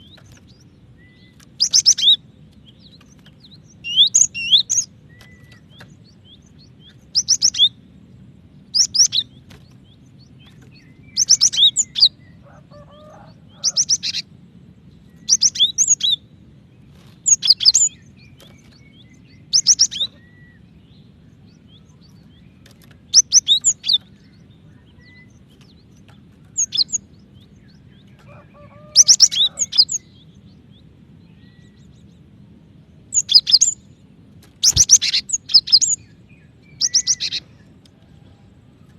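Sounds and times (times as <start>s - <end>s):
bird chirping: 0.0s - 38.9s
faint low hum: 0.0s - 38.9s.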